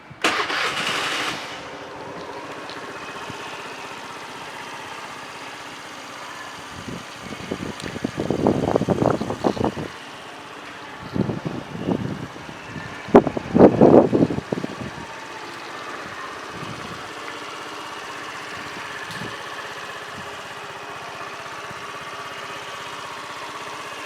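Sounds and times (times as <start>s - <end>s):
scooter engine idling: 0.1s - 24.0s
wind buffeting microphone: 6.7s - 10.0s, 11.0s - 15.3s.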